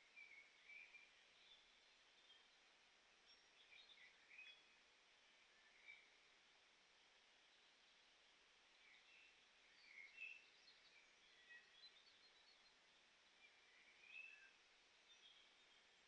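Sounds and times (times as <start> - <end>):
faint birdsong chirps: 0.0 - 16.0.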